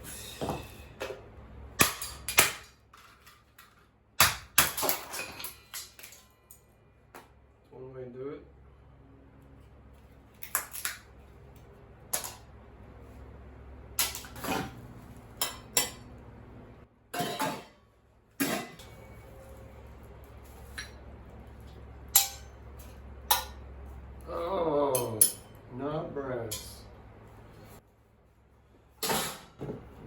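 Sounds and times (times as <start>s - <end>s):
dishware and metal clinking: 4.6s - 6.6s, 14.0s - 14.8s, 15.4s - 16.1s, 17.2s - 17.8s, 18.4s - 19.6s, 20.6s - 21.0s, 22.1s - 23.6s, 24.9s - 25.6s, 26.5s - 26.9s, 29.0s - 29.8s.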